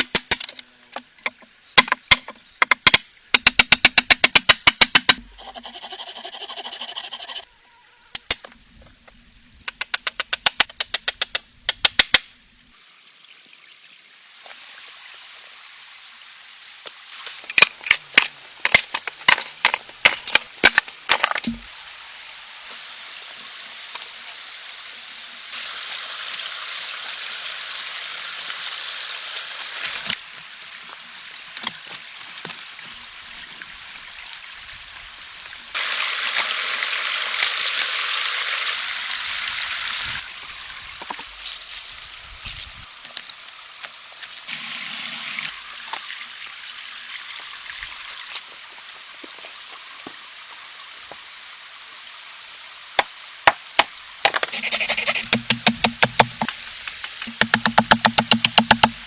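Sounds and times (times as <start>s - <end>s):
steady rain hiss: 47.5s - 55.3s, 56.3s - 57.4s.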